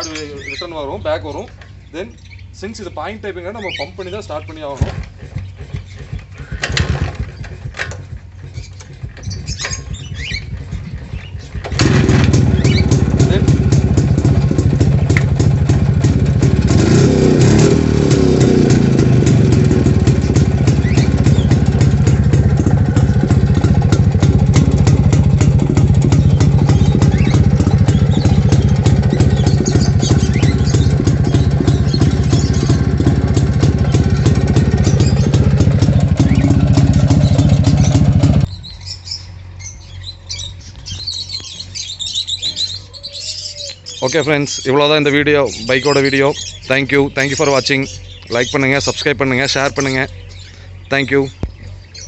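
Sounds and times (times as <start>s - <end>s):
birds chirping faintly: 0.0s - 17.0s, 19.0s - 52.0s
two-stroke motorcycle engine running: 4.0s - 41.9s.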